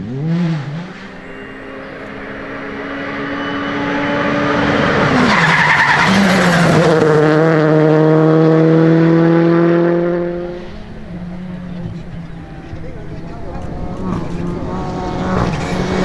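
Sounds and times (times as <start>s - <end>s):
rally car engine: 0.0s - 16.0s
tyres sliding on gravel: 4.3s - 7.4s, 12.9s - 16.0s.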